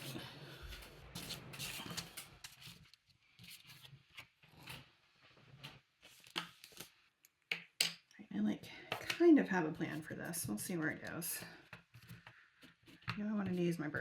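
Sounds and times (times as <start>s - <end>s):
paper and stamps rustling: 0.0s - 4.8s.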